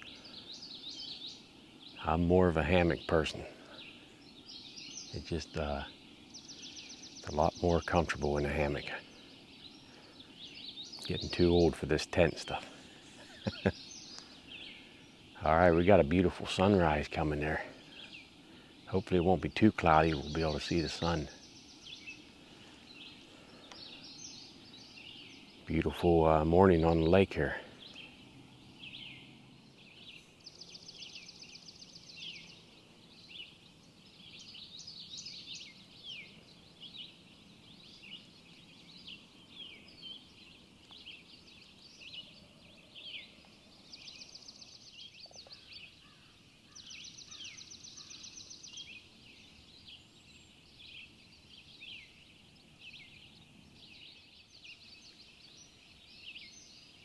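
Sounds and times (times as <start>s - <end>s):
songbirds chirping and whistling: 0.0s - 57.0s
fast dry bird trill: 9.8s - 22.3s.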